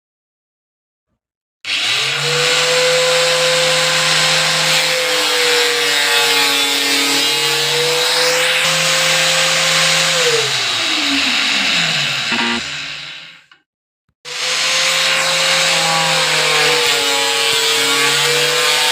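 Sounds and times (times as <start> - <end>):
angle grinder whining: 1.7 - 13.5.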